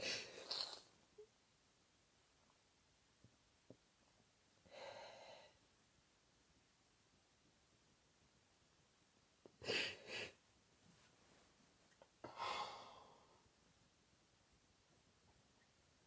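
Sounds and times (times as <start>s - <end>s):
person breathing in sorrow: 12.2s - 13.5s.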